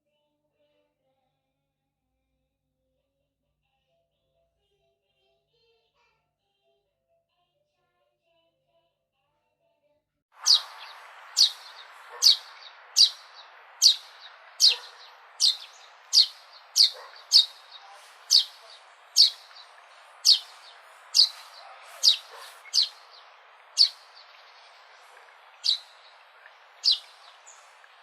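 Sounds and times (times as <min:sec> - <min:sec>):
sparrow chirping: 0:10.4 - 0:28.0
steady background hiss: 0:10.4 - 0:28.0.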